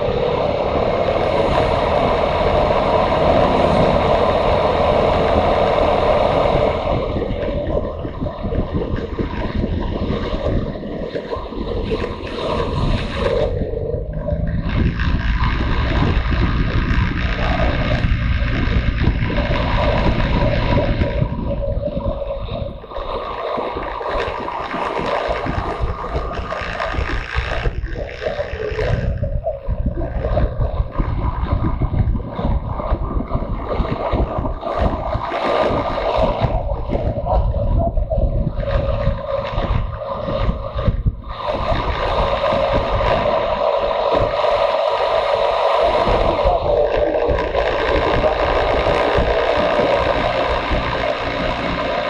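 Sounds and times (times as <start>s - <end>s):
motorcycle engine running: 0.0s - 11.1s, 11.7s - 22.8s, 24.2s - 33.6s, 47.3s - 52.0s
wind buffeting on microphone: 0.0s - 52.0s.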